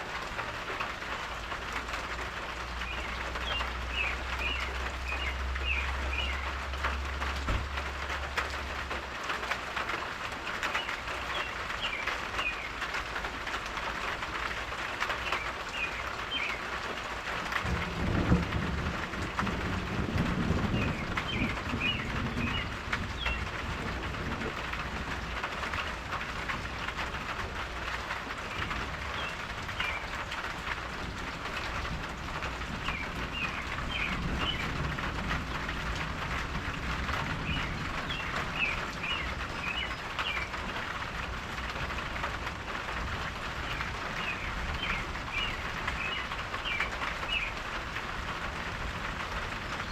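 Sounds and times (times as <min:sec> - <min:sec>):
rain pattering: 0:00.0 - 0:49.9
birds chirping: 0:02.8 - 0:06.5, 0:10.7 - 0:12.8, 0:15.2 - 0:16.6, 0:20.8 - 0:23.5, 0:29.2 - 0:30.2, 0:32.8 - 0:34.7, 0:37.4 - 0:40.6, 0:43.7 - 0:47.6.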